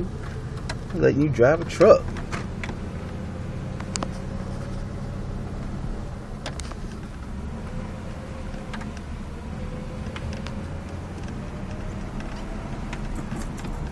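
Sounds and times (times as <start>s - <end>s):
truck engine and road rumble: 0.0s - 13.9s.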